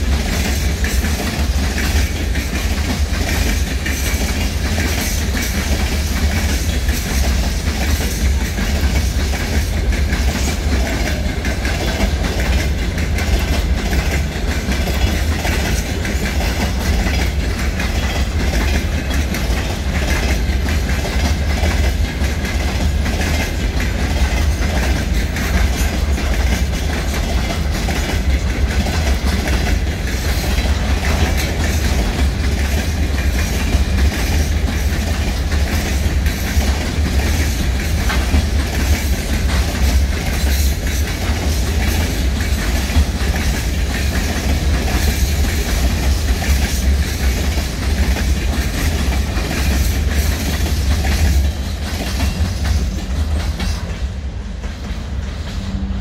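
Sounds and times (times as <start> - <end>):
freight train rumbling: 0.0 - 56.0
wheels clattering on rails: 0.0 - 56.0.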